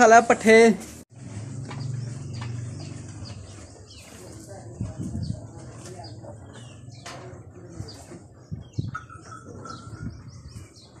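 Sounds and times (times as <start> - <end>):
small birds chirping: 1.4 - 11.0.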